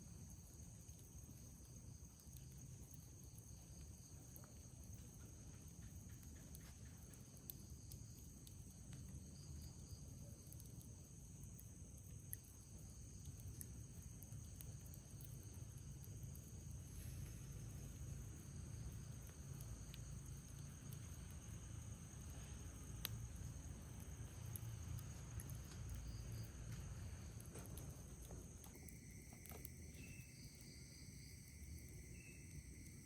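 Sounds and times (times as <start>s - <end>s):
campfire crackles: 0.0s - 33.0s
crickets chirring: 0.0s - 33.0s
low background rumble: 7.3s - 33.0s.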